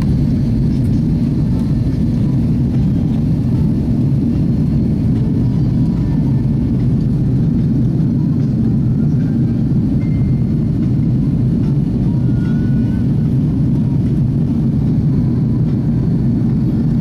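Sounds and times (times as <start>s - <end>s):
jet engine cabin drone: 0.0s - 17.0s.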